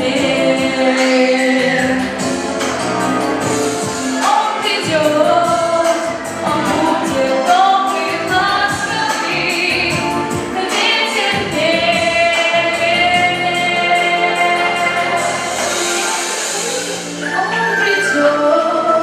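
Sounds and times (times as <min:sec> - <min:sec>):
woman singing a ballad: 0:00.0 - 0:02.4, 0:04.0 - 0:19.0
instrumental backing track: 0:00.0 - 0:19.0.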